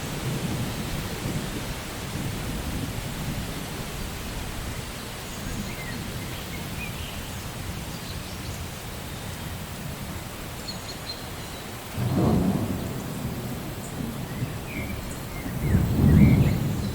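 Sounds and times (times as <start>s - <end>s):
low rumble of thunder: 0.0s - 7.0s, 11.8s - 16.9s
steady rain: 0.0s - 16.9s.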